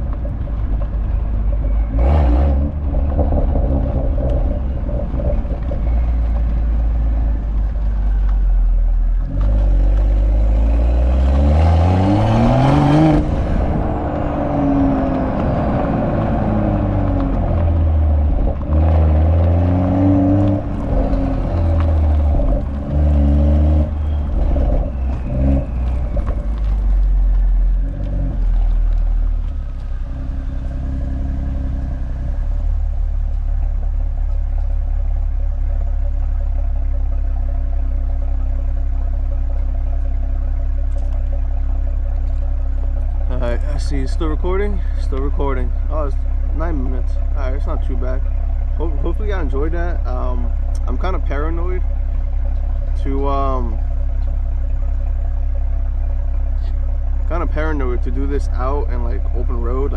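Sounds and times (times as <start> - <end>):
car exhaust rumbling: 0.0 - 59.9
engine revving hard: 9.4 - 26.7.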